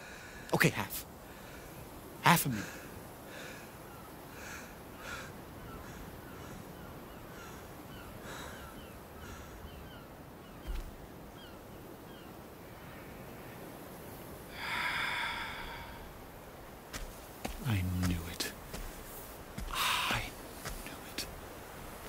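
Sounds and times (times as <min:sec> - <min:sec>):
bird calls: 0:03.4 - 0:13.8, 0:14.6 - 0:22.0.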